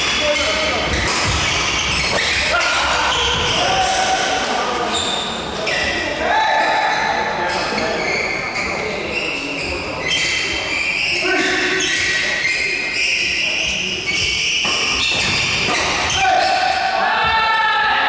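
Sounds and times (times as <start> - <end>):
shoes squeaking on court floor: 0.0 - 16.8
racket hitting shuttlecock: 0.8 - 2.6, 14.5 - 16.6.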